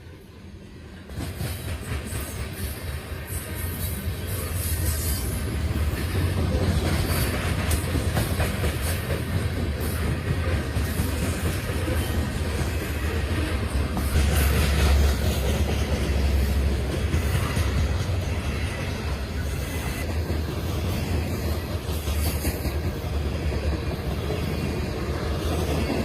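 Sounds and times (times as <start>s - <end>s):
freight train rumbling past: 0.0s - 26.0s
train wheel clicks: 5.8s - 12.7s.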